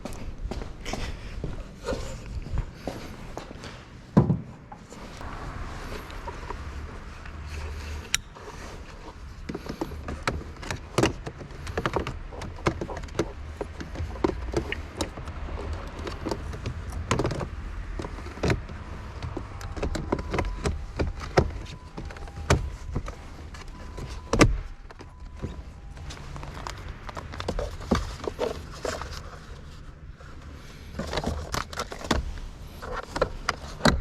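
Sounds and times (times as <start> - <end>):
low steady rumble: 5.0 - 11.0
irregular clicks and knocks: 9.4 - 29.3
faint steady tones: 18.2 - 28.0.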